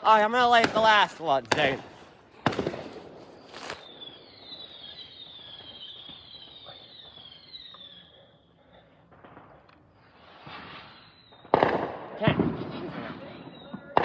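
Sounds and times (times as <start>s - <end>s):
firework fuse hissing: 1.1s - 4.0s, 9.9s - 11.3s.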